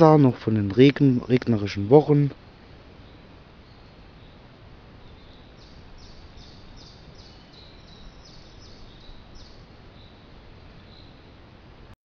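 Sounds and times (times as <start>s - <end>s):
songbird chirping: 0.0s - 11.5s
outdoor background noise: 0.0s - 12.0s.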